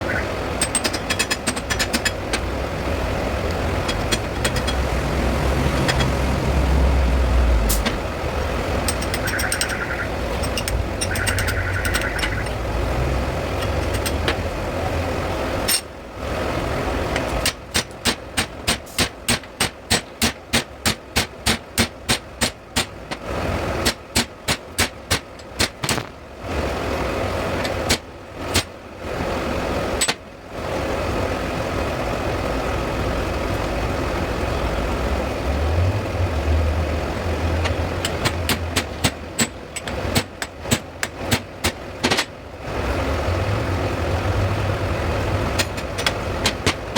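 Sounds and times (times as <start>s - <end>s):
low machine drone: 2.0s - 15.6s.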